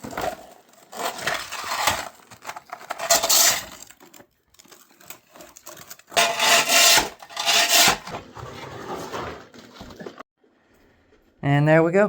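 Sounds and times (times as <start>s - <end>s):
ice clinking and crunching: 0.0s - 7.8s
shovel scraping ice and snow: 0.8s - 2.2s, 2.8s - 3.9s, 6.2s - 9.6s.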